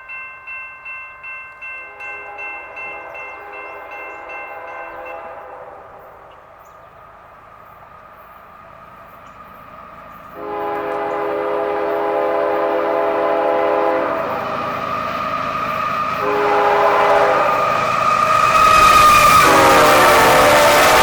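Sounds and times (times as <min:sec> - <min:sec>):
approaching train rumble: 0:00.0 - 0:21.0
locomotive air horn blasts: 0:01.9 - 0:06.4, 0:10.4 - 0:14.5, 0:16.2 - 0:21.0.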